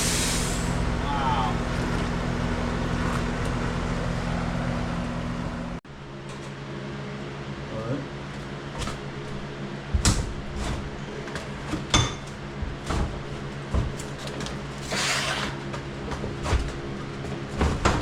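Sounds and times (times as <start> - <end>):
machine hum: 0.0 - 18.0
tools clunking and knocking: 9.9 - 14.8
scrape or rattle: 14.8 - 15.6.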